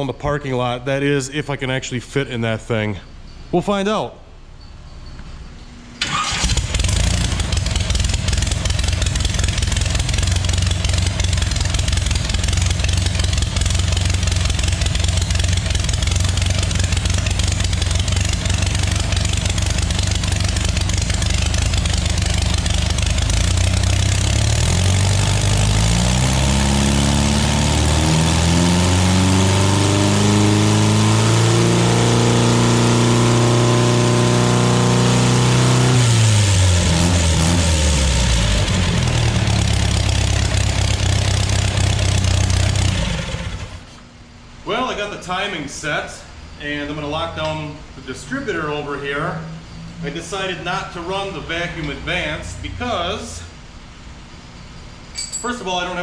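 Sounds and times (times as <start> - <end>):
car engine starting and idling roughly: 6.0 - 44.0.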